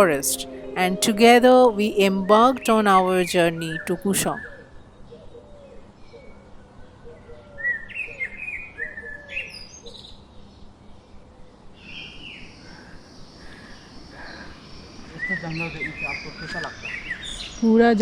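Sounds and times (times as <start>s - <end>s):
bird low repeating note: 0.0s - 4.5s.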